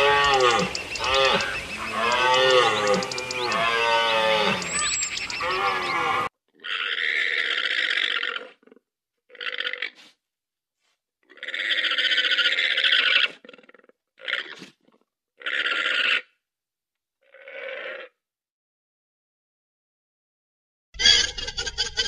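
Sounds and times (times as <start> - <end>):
llama calling: 0.0 - 6.3.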